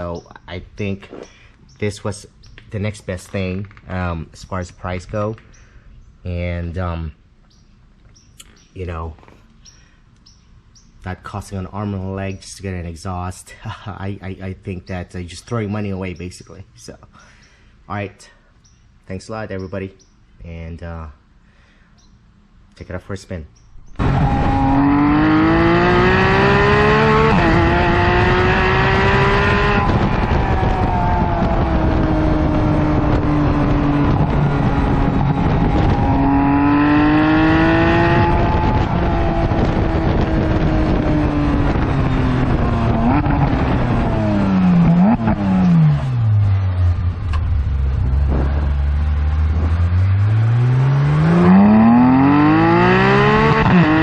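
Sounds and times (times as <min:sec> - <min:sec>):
sports car engine accelerating: 0:23.6 - 0:54.0.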